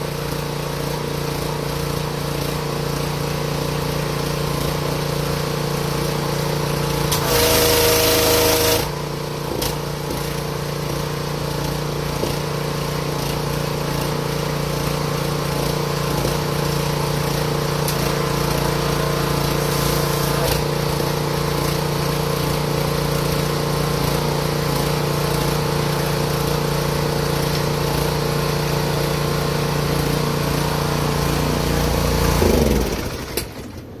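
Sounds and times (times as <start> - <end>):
pressure washer hissing rush: 0.0 - 33.6
small gasoline engine running: 0.0 - 34.0.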